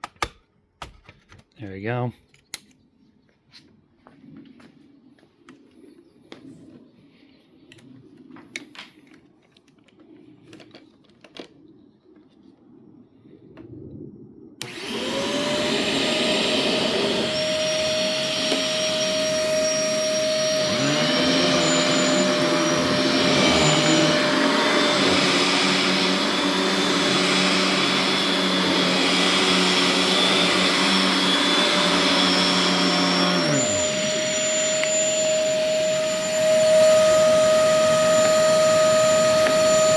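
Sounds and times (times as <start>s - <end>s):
vacuum motor whining: 14.6s - 39.9s.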